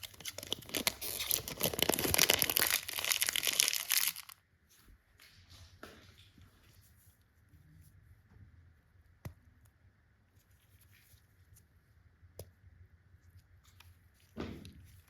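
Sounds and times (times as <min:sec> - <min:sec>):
candy packaging clicks: 0:00.0 - 0:04.4.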